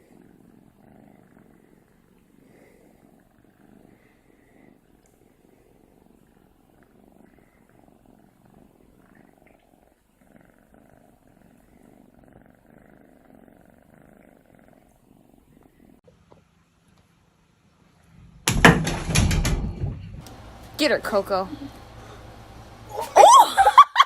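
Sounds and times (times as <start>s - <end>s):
cat purring: 0.0s - 16.3s.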